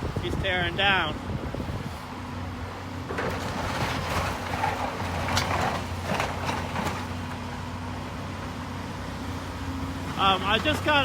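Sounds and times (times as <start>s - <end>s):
demolition machine engine: 0.0s - 11.0s
masonry crunching and clattering: 3.1s - 7.3s.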